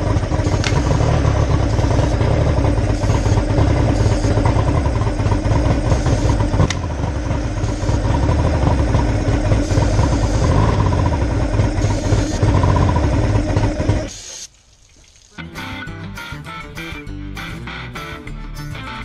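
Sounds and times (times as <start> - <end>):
outboard engine idling fast: 0.0 - 14.2.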